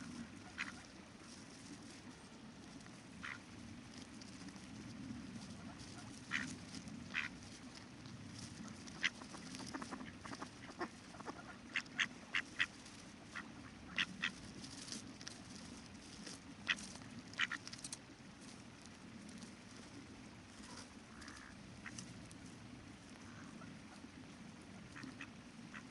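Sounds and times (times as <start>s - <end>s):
ducks quacking: 0.0s - 1.0s, 3.2s - 3.5s, 5.5s - 7.8s, 8.5s - 14.4s, 16.6s - 17.6s, 20.6s - 22.1s, 24.8s - 25.9s.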